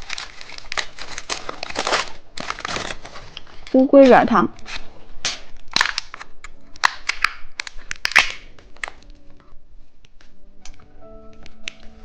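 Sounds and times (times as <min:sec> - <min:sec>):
plastic wrapper crinkling and tearing: 0:00.0 - 0:09.4.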